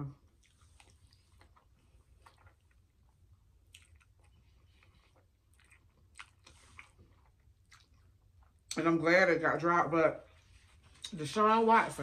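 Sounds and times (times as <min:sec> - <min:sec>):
chewing with wet mouth clicks: 0:00.2 - 0:08.8.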